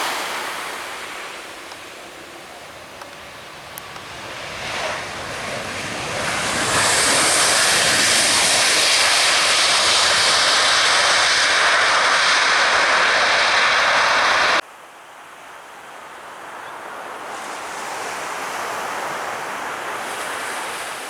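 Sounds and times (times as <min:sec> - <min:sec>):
jet airliner engines: 0:00.0 - 0:14.6.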